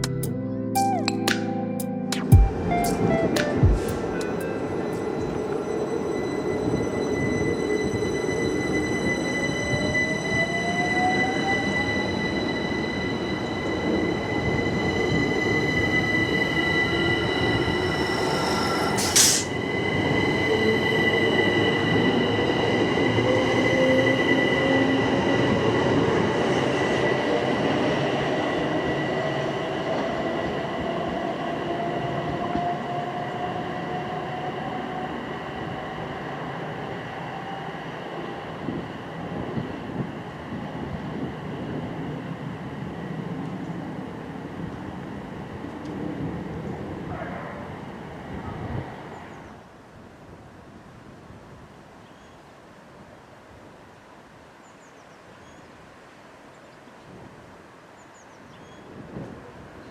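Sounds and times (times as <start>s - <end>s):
steady high tone: 0.0s - 24.9s
electric train motor whine: 4.0s - 22.4s.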